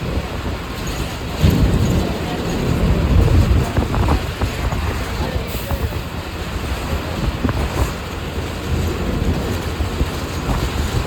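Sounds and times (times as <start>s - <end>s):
vehicle low rumble: 0.0s - 11.0s
rattles and knocks: 0.7s - 5.2s.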